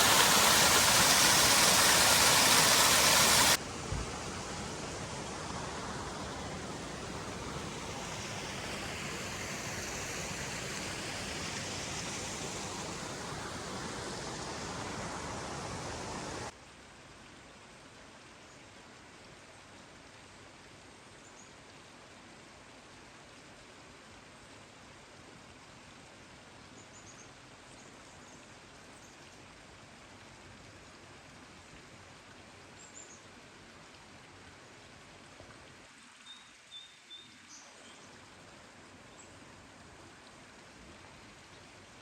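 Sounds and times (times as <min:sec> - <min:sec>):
heavy rain hissing: 0:00.0 - 0:16.5.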